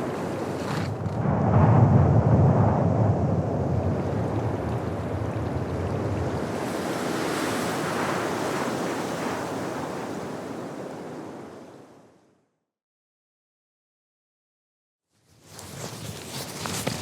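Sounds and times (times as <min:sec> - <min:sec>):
wind buffeting microphone: 0:00.0 - 0:11.7
blizzard wind rushing: 0:00.0 - 0:12.2.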